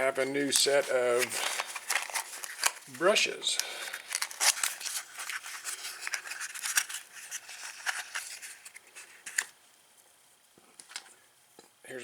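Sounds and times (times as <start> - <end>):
packaging rustling and crinkling: 0.2 - 9.6.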